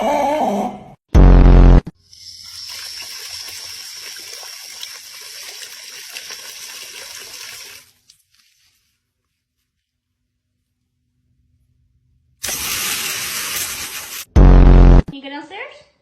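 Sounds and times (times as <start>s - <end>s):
water running: 2.0s - 8.4s.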